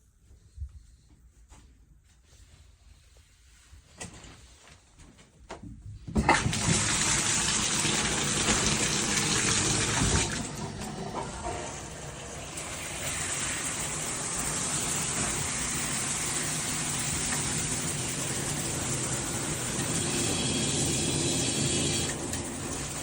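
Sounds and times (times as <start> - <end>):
shower water spraying: 6.4 - 23.0.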